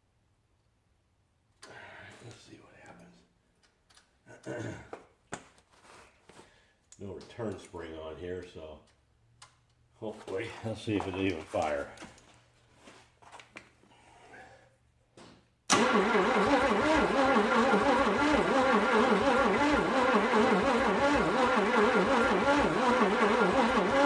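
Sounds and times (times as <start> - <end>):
engine cranking on starter: 15.7 - 24.0.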